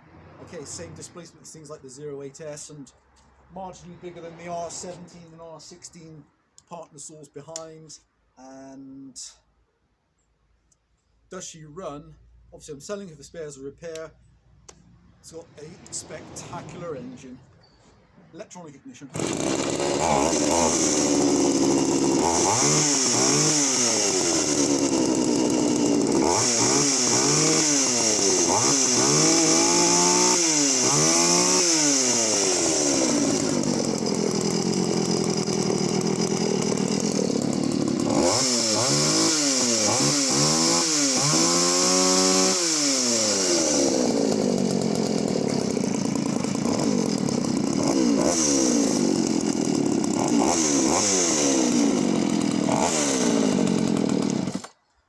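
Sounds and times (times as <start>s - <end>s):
chainsaw engine revving: 3.8s - 5.9s, 14.7s - 17.6s, 18.3s - 54.8s.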